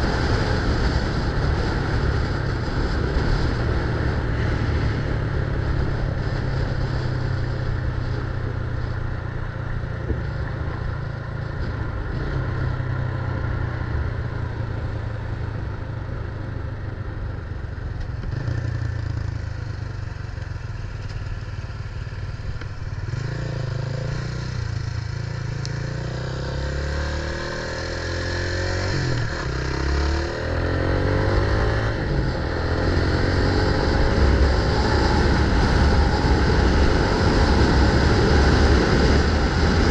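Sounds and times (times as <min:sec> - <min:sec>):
wind on microphone: 0:00.0 - 0:08.5, 0:30.5 - 0:39.9
vehicle engine revving: 0:23.1 - 0:39.9.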